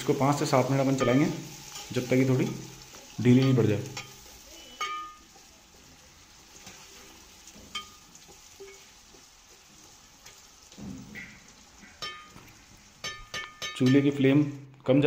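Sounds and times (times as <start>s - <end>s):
carrots sizzling in hot oil: 0.0s - 14.7s
ladle clinking against metal pot: 4.8s - 5.2s, 11.2s - 12.4s, 13.0s - 14.2s.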